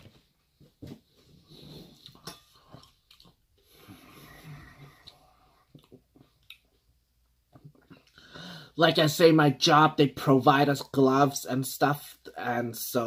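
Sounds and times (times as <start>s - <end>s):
person chewing food: 1.4s - 8.2s
breathing: 3.6s - 5.7s, 8.0s - 8.8s.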